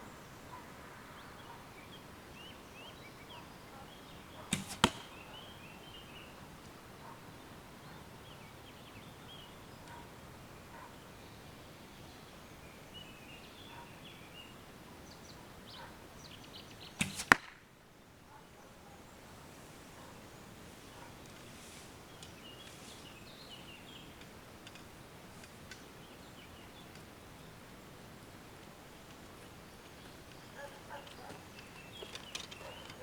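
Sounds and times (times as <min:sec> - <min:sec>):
birds chirping: 0:00.0 - 0:17.3, 0:28.9 - 0:33.0
arrow hitting target: 0:04.5 - 0:05.3, 0:17.0 - 0:17.6
bow releasing arrow: 0:04.5 - 0:05.3, 0:17.0 - 0:17.6.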